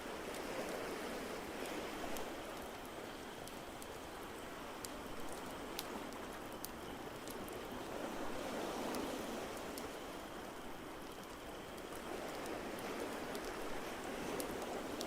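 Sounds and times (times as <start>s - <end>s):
log fire crackling: 1.4s - 8.0s.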